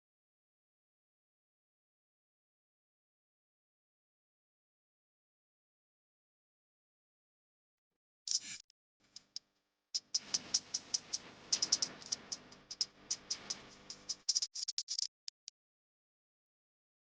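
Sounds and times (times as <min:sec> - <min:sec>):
sharp clicks: 0:10.0 - 0:15.5.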